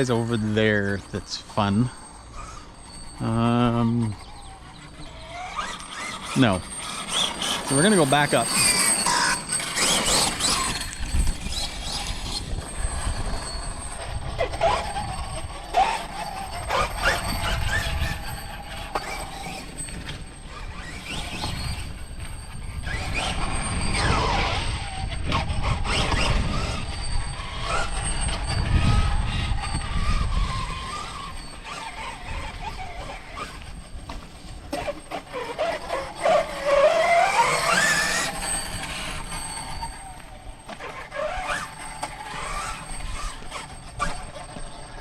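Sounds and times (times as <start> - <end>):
electric motor whine: 0.0 - 45.0.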